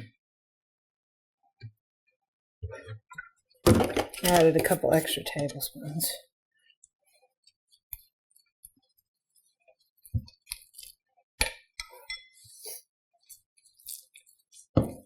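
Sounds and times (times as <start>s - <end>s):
utensils clinking against bowl: 11.8s - 12.5s.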